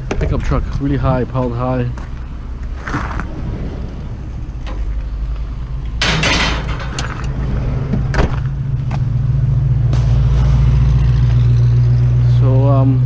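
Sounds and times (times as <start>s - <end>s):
truck engine running: 0.0s - 13.0s
rustling clatter: 2.0s - 9.1s.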